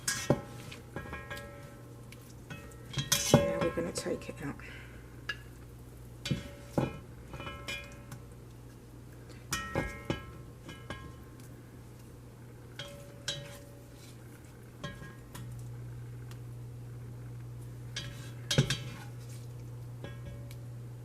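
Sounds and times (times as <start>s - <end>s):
metal spatula scraping frying pan: 0.0s - 1.6s, 2.5s - 3.7s, 12.8s - 14.2s, 18.0s - 19.4s
steady low hum: 0.0s - 21.0s.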